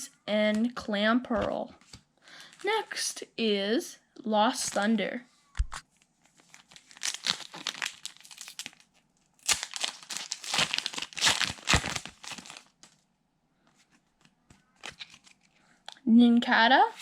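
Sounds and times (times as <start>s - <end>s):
foil wrapper tearing and crinkling: 6.4s - 13.0s, 14.8s - 15.5s.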